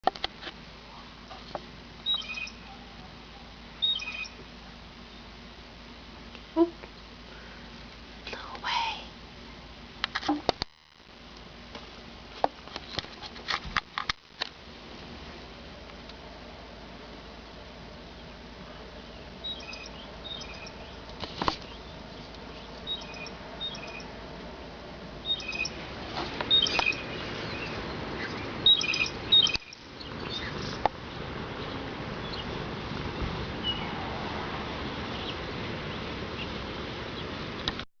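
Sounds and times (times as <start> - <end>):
blue jay calling: 2.0 - 2.9, 3.8 - 4.4, 19.1 - 24.1, 25.2 - 25.8, 26.4 - 30.8.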